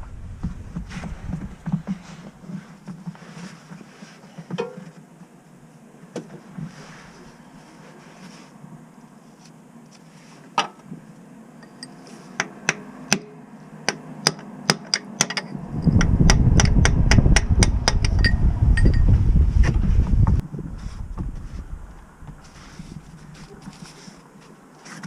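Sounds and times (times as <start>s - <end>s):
loud low rumble: 0.0s - 2.1s, 15.6s - 22.6s.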